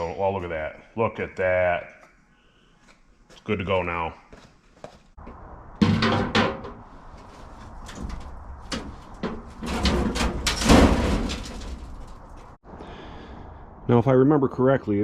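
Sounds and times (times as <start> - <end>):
rattling and scraping: 5.8 - 12.6
metal parts knocking: 7.9 - 12.5.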